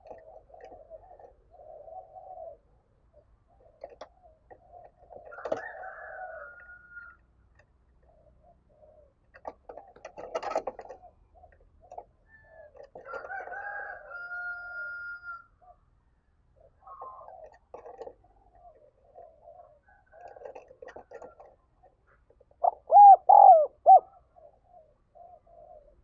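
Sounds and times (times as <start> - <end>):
doves cooing: 0.0 - 15.8, 16.6 - 26.0
rooster crowing: 5.3 - 7.2, 13.1 - 15.5.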